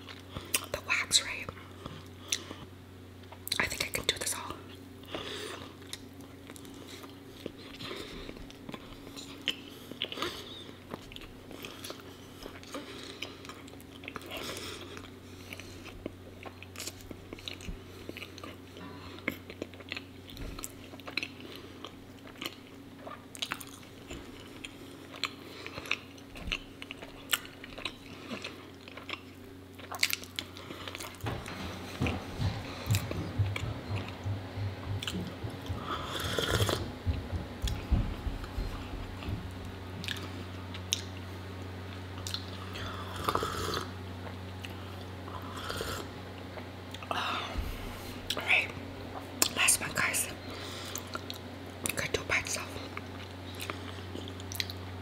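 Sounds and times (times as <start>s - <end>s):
sticky wet chewing: 5.8s - 31.2s, 42.2s - 43.4s, 52.9s - 54.9s.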